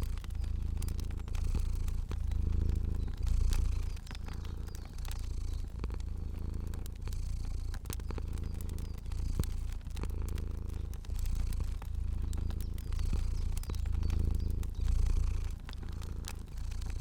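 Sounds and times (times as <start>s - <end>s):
cat purring: 0.0s - 17.0s
crackling fire pops: 0.0s - 17.0s.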